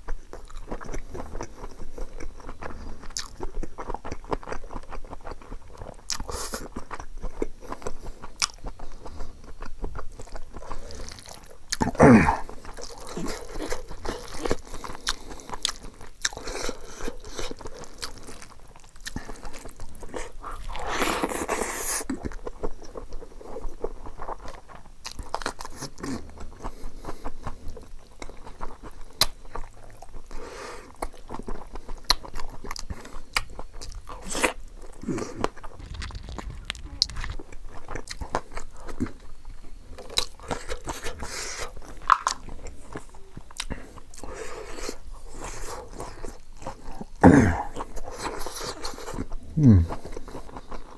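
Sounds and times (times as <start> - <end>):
person chewing food: 0.0 - 50.9
rushing noise: 35.8 - 37.6.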